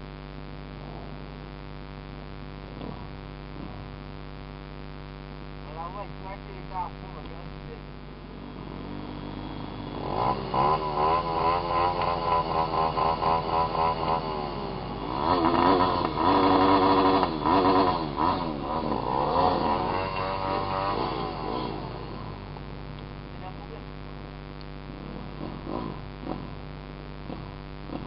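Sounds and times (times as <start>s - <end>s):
dirt bike engine revving: 2.6s - 4.0s, 7.0s - 23.8s, 24.8s - 28.0s.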